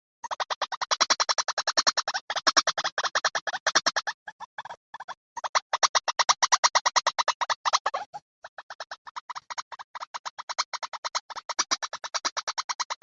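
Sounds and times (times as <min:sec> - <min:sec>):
bird calling rapid repeated notes: 0:00.0 - 0:13.0.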